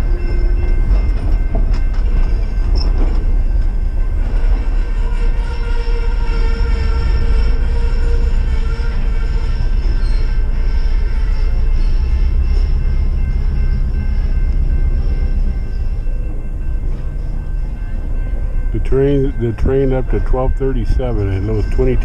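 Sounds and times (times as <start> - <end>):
train cars rumbling past: 0.0 - 22.0.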